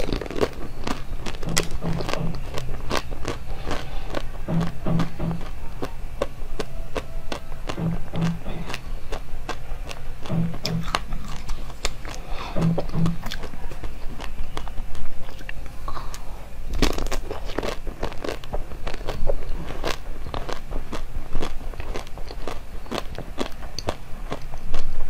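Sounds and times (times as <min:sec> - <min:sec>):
crunchy chewing of frozen sweet: 0:00.0 - 0:25.0.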